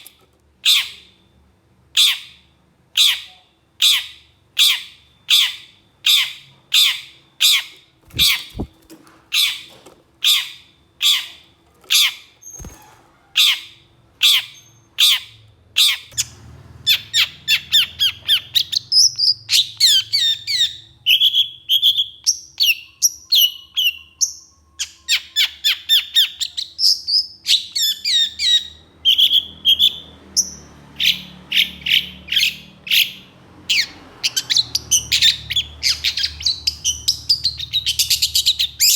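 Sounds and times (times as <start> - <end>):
fast chattering birdsong: 8.1 - 9.5.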